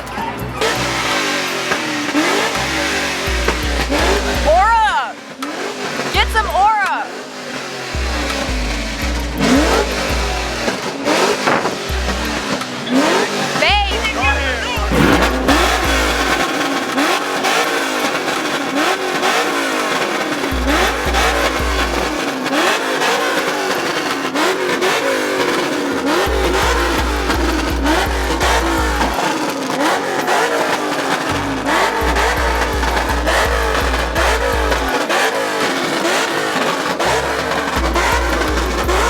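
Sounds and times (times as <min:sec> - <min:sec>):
car engines revving: 0:00.0 - 0:39.0
deep bass beat: 0:02.7 - 0:04.9, 0:08.0 - 0:17.1, 0:20.5 - 0:22.2, 0:26.1 - 0:29.2, 0:31.4 - 0:34.9, 0:37.2 - 0:39.0.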